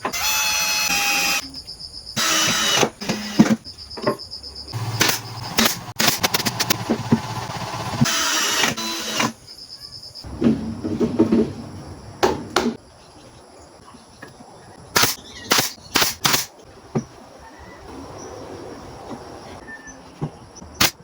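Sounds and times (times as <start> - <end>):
power tool running: 0.0 - 1.4, 2.2 - 3.6, 4.8 - 9.3
sharp snaps: 15.0 - 16.5.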